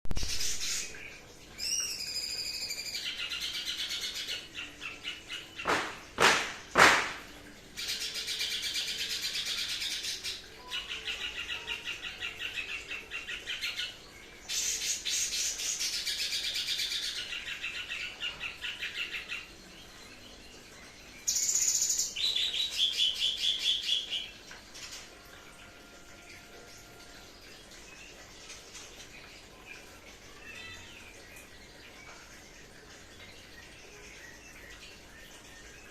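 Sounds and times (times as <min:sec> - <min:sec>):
loud sharp knocks: 0:05.6 - 0:07.3.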